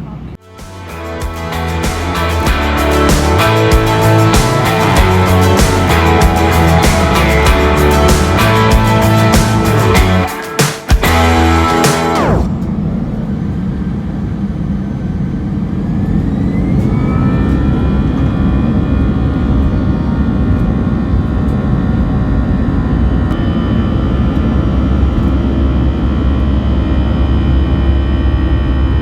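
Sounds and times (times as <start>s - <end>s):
jet engine rumble and whine: 12.2s - 29.0s.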